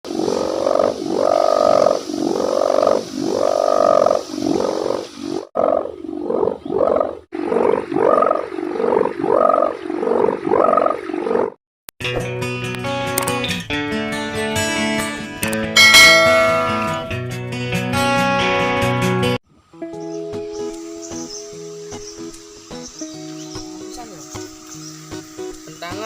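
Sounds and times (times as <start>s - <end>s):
guitar music: 12.0s - 26.0s.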